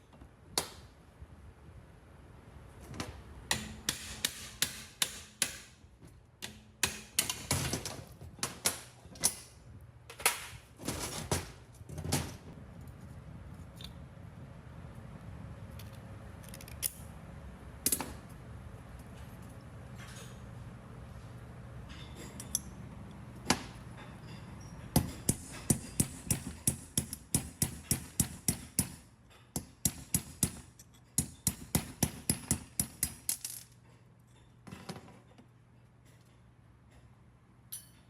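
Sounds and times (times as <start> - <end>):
sharp metallic taps and clinks: 37.7 - 38.0.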